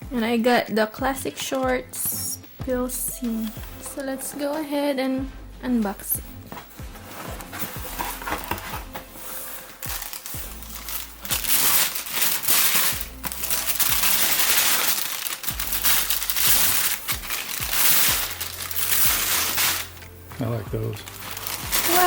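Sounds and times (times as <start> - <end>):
background music: 0.0 - 22.0
paper crinkling and rustling: 6.5 - 22.0.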